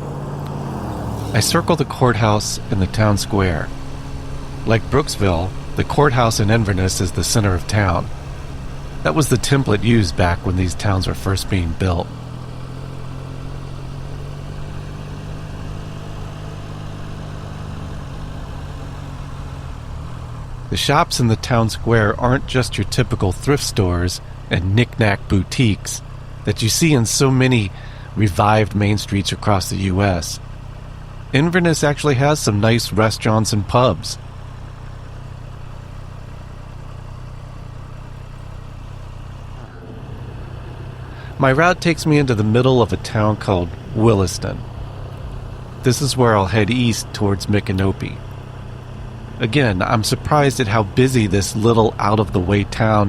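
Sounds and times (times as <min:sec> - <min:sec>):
motorcycle engine idling: 0:00.0 - 0:53.0
road and air noise hiss: 0:34.3 - 0:49.6.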